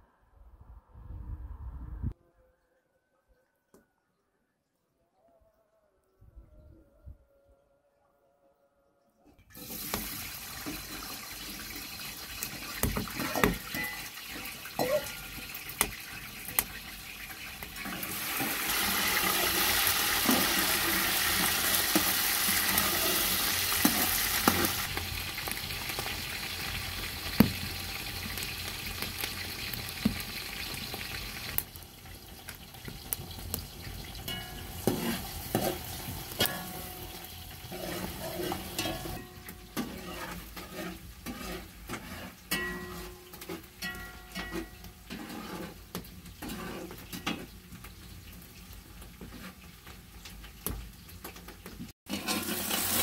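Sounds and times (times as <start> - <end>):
food sizzling in a pan: 9.5 - 53.0
utensil stirring and knocking pan: 9.9 - 16.8, 17.4 - 25.0, 25.9 - 31.6, 34.0 - 48.0, 52.1 - 53.0.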